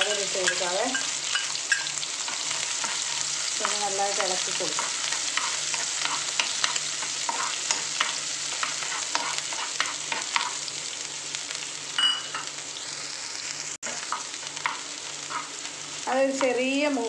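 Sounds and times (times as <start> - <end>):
spoon scraping a pan: 0.0 - 10.7, 13.8 - 15.7
garlic sizzling in oil: 0.0 - 17.0.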